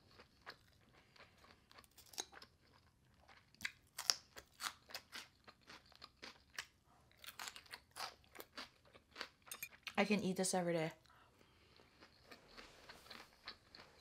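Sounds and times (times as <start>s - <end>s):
chewing crunchy vegetables: 0.0s - 10.0s, 11.0s - 14.0s.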